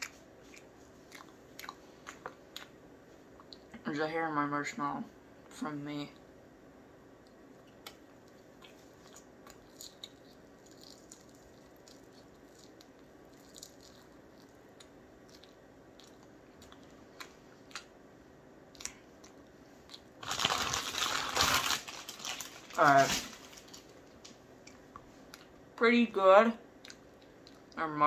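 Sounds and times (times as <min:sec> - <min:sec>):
wet mouth clicks chewing: 0:00.0 - 0:02.8, 0:07.2 - 0:17.9, 0:26.8 - 0:27.8
faint steady hum: 0:00.0 - 0:28.0.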